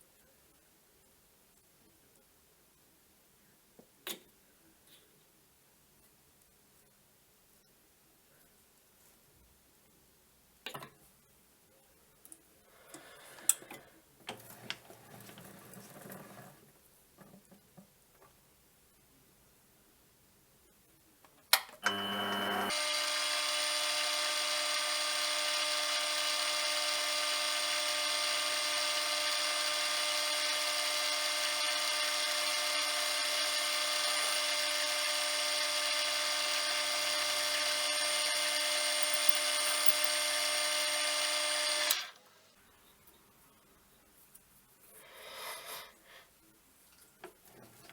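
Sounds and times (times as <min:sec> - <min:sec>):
electric lathe whining: 0:21.8 - 0:42.2.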